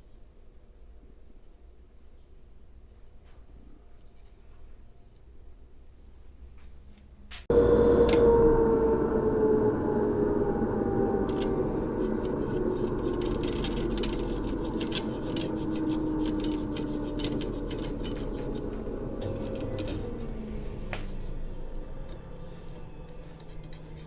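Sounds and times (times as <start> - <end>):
small electric motor humming: 7.5 - 24.0
light scratching and ticking: 11.3 - 21.4.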